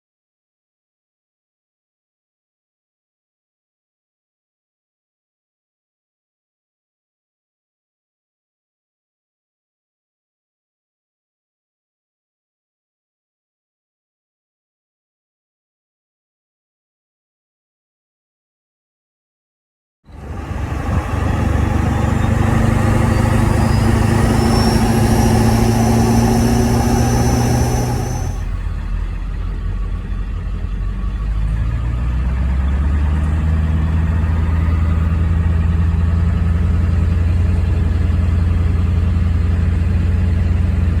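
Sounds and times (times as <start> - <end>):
diesel engine drone: 20.1 - 41.0
high turbo whine: 20.1 - 41.0.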